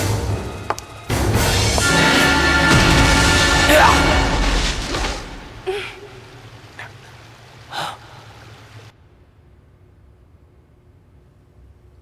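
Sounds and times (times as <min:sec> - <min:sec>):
loud sound: 0:01.1 - 0:06.3.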